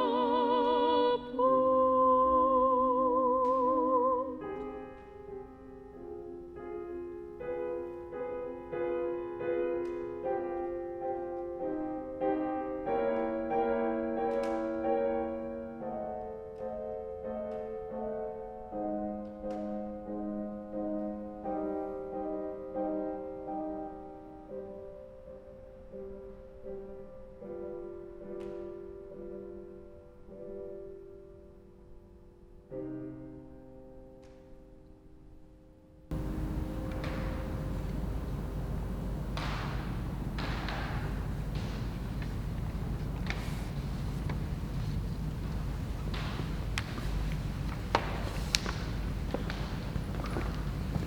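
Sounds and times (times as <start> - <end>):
person singing with vibrato: 0.0 - 4.8
piano chords: 0.0 - 51.0.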